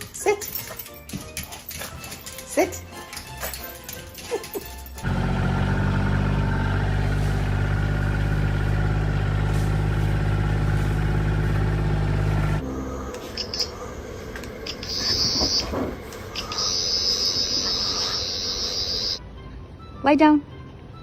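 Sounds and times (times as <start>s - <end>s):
motor running: 5.0s - 15.7s.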